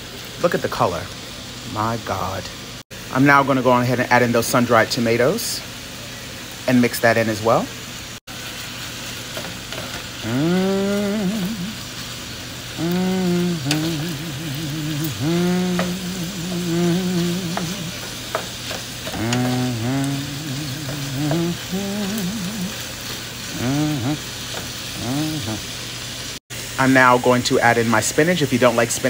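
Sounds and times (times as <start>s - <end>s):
food sizzling in a pot: 0.0s - 29.0s
man humming: 10.2s - 12.0s, 12.7s - 25.8s.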